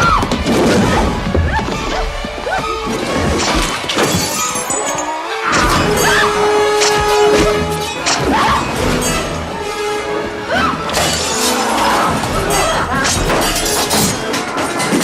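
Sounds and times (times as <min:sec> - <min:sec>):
tense horror music: 0:00.0 - 0:15.0
glass shattering: 0:03.6 - 0:06.2, 0:12.4 - 0:15.0.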